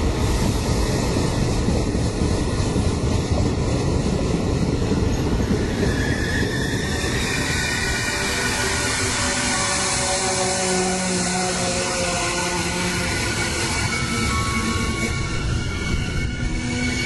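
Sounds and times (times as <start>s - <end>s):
train wheels rumbling on rail: 0.0s - 17.0s
wheel squeal: 5.1s - 17.0s.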